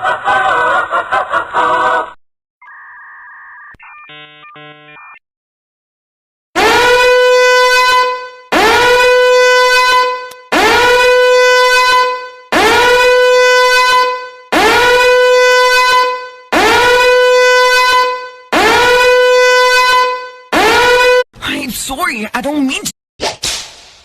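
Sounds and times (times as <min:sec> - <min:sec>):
loud horn blasts: 0:06.6 - 0:21.2.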